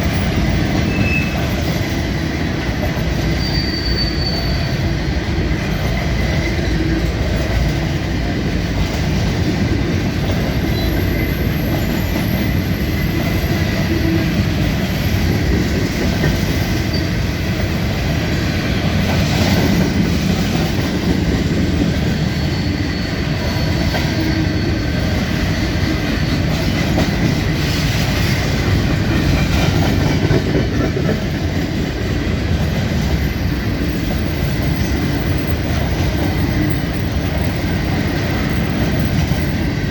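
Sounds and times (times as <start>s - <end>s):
train wheels rumbling on rails: 0.0s - 39.9s
faint wheel squeal: 0.8s - 1.6s, 3.3s - 4.8s, 22.2s - 25.0s.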